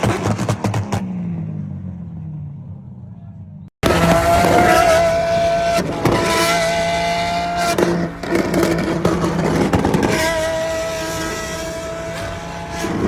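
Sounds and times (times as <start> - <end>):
car engine at high revs: 3.8 - 13.0.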